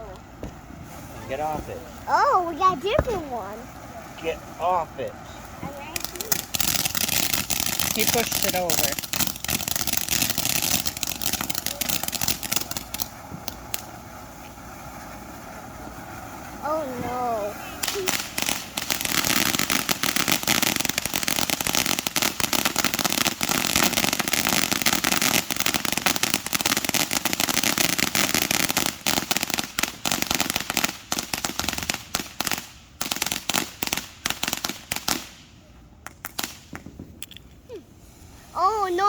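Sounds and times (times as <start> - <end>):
fireworks crackling: 0.0 - 39.0.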